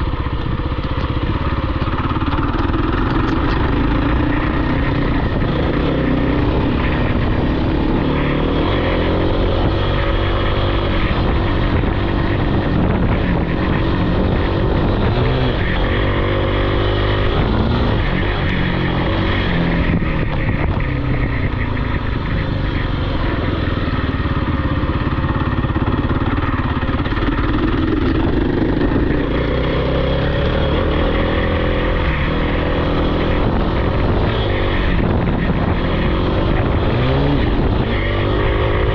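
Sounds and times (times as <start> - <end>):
off-road vehicle engine revving: 0.0 - 38.9.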